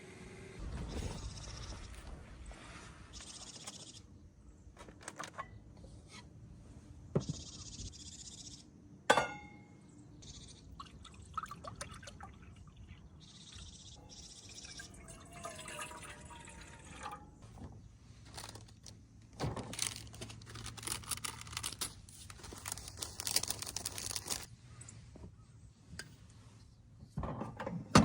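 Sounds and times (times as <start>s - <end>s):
sharp ringing clink: 9.1s - 9.8s
water pouring in bursts: 14.3s - 17.2s.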